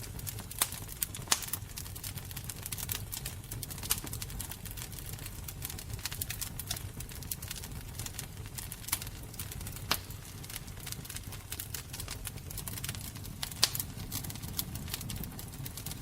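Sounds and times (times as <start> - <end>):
fire crackling and popping: 0.0 - 16.0.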